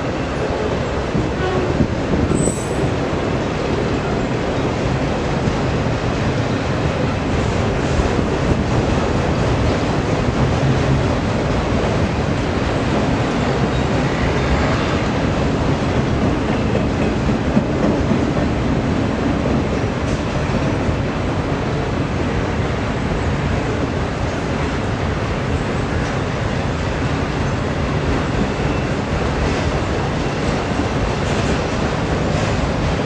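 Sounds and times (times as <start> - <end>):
freight train wheels rumbling: 0.0 - 33.0.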